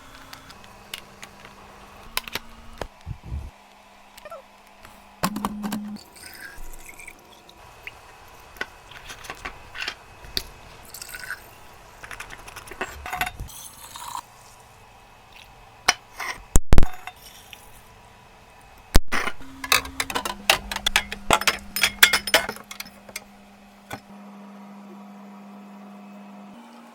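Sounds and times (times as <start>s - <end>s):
low steady hum: 0.0s - 16.3s, 16.9s - 24.1s
containers knocking when set down: 19.2s - 23.3s
glass jars and bottles clinking: 19.2s - 23.3s.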